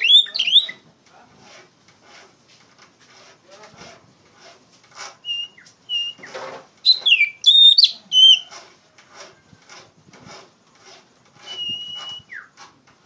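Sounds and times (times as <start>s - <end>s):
bird singing whistled phrases: 0.0s - 0.8s, 5.2s - 8.5s, 11.5s - 12.5s
harsh rasping bird notes: 0.0s - 13.0s.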